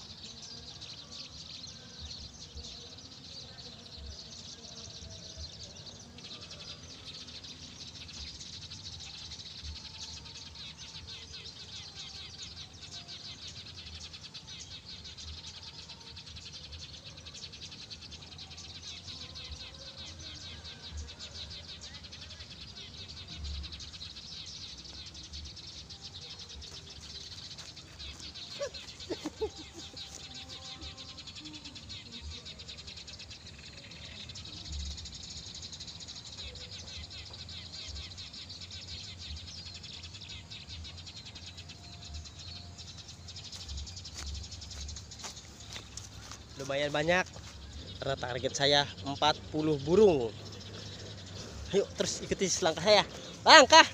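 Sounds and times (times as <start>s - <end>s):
high-pitched chirring chorus: 45.4s - 53.9s.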